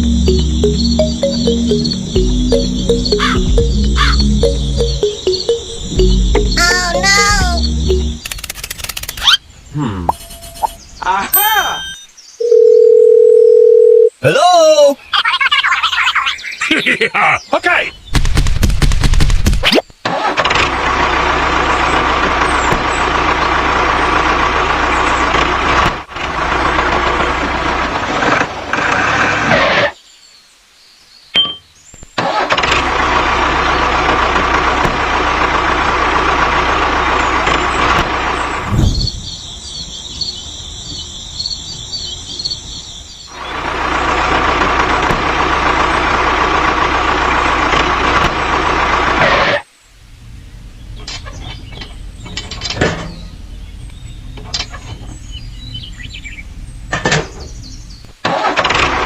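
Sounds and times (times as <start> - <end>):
small diesel engine running: 0.0 - 8.9, 20.1 - 28.7, 32.2 - 38.8, 43.3 - 49.3
thin high repeating sound: 0.0 - 9.1.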